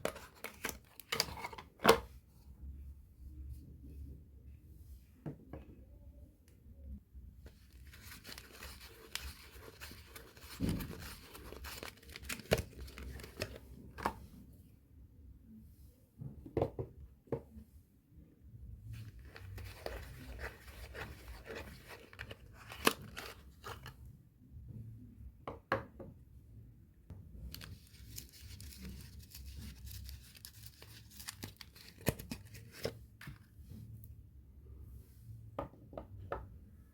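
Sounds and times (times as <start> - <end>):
wrapping tearing and crinkling: 7.8 - 13.6, 27.5 - 32.9.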